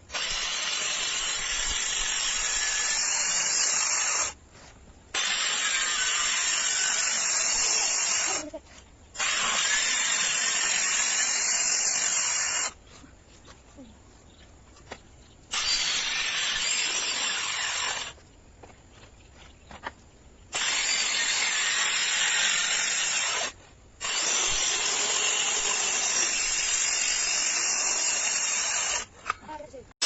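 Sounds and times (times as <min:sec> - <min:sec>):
circular saw cutting wood: 0:00.1 - 0:04.4, 0:05.2 - 0:08.5, 0:09.2 - 0:12.8, 0:15.5 - 0:18.2, 0:20.6 - 0:29.1.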